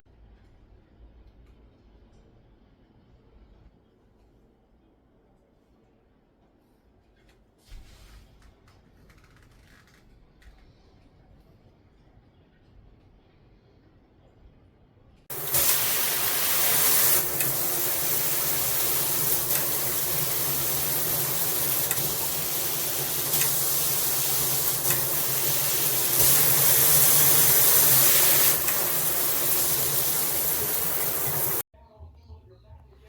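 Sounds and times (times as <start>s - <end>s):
shower head spraying water: 15.3s - 31.6s.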